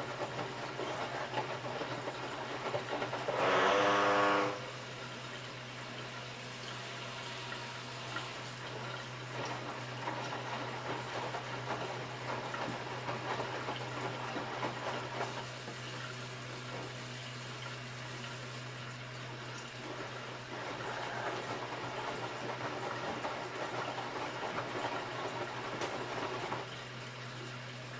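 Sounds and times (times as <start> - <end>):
washing machine low hum: 0.0 - 27.9
water sloshing in washing machine: 0.0 - 27.9.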